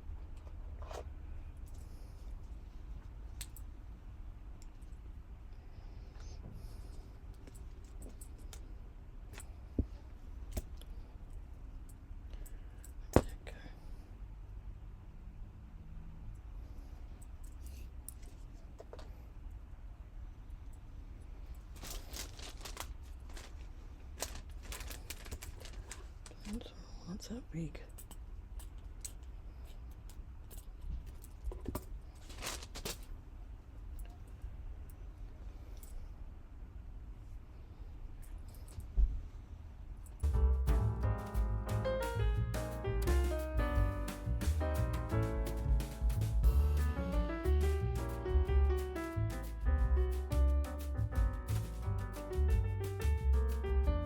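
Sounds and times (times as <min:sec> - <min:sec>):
light clicks and taps of tools: 0:03.0 - 0:03.7, 0:27.9 - 0:32.0
fabric rustling: 0:21.6 - 0:26.6, 0:32.0 - 0:33.2.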